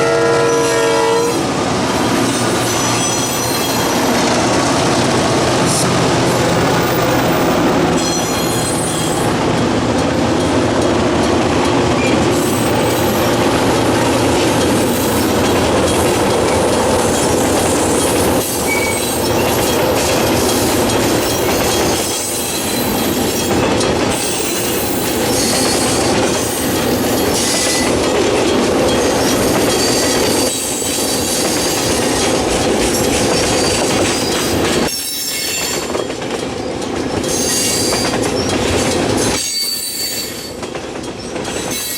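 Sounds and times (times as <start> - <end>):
freight train wheels rumbling: 0.0 - 41.9
clickety-clack over rail joints: 1.2 - 41.9
wheel squeal: 2.2 - 4.3, 8.0 - 9.3, 17.8 - 19.8, 37.2 - 38.5, 39.2 - 40.6.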